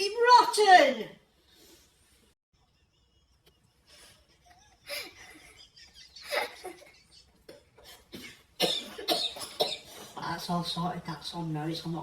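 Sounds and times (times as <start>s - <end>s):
breathing: 1.4s - 2.2s, 9.9s - 10.2s
people laughing: 2.6s - 7.6s.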